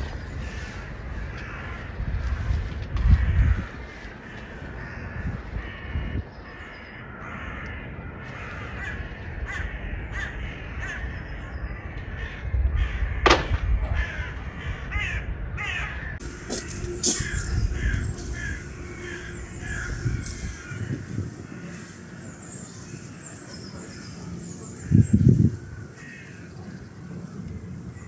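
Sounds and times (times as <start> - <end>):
birds calling: 0.0 - 28.0
sharp crack: 13.2 - 14.0.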